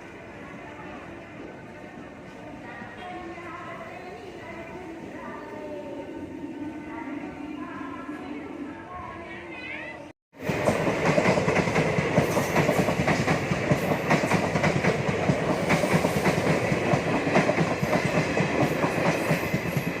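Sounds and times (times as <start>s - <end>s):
train rumbling on track: 10.4s - 20.0s.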